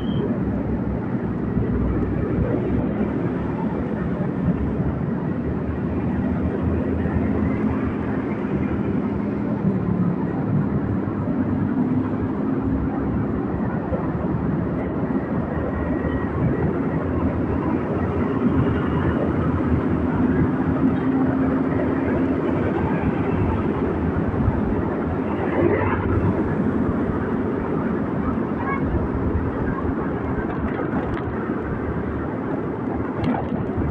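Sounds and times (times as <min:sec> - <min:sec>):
road and wind noise: 0:00.0 - 0:33.9.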